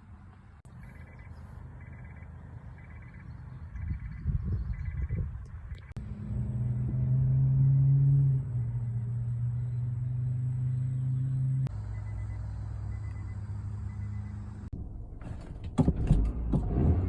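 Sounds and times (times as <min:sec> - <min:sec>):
car engine starting and idling: 0:06.0 - 0:17.0.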